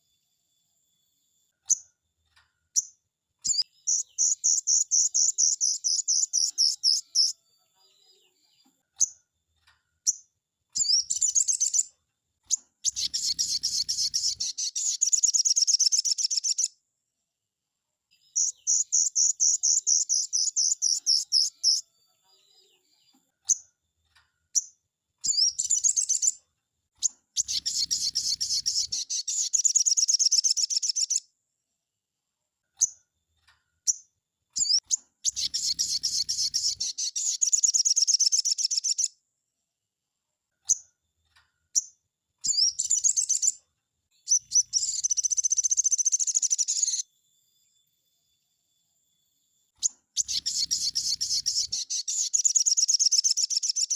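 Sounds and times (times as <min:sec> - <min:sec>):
bird short chirps: 0:03.5 - 0:07.4, 0:12.5 - 0:16.7, 0:18.3 - 0:21.8, 0:27.0 - 0:31.2, 0:34.6 - 0:39.1, 0:41.8 - 0:43.6, 0:44.3 - 0:47.0, 0:49.8 - 0:53.9
songbird rattling trills: 0:12.8 - 0:16.7, 0:27.4 - 0:31.2, 0:34.6 - 0:39.1, 0:50.2 - 0:53.9.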